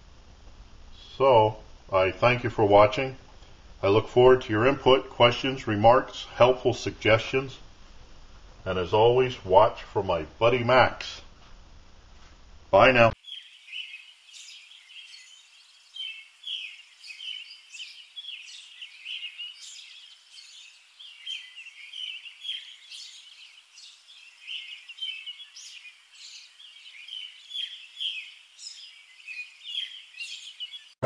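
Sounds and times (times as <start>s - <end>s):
small birds chirping: 13.0s - 31.0s.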